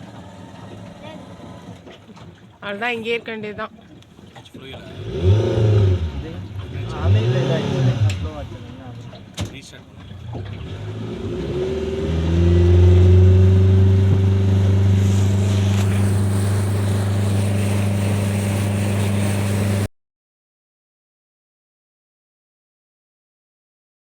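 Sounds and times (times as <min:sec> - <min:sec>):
engine revving: 0:04.6 - 0:19.9.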